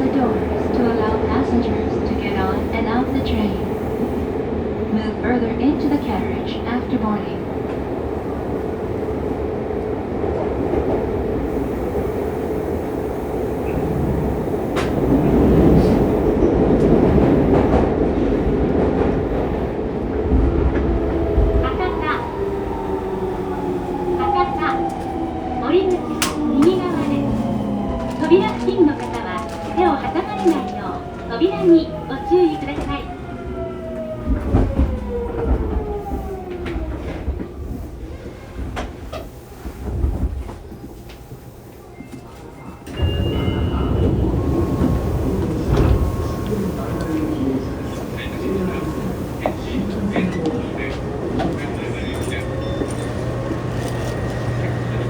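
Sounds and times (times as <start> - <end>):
train rumbling through tunnel: 0.0 - 55.0.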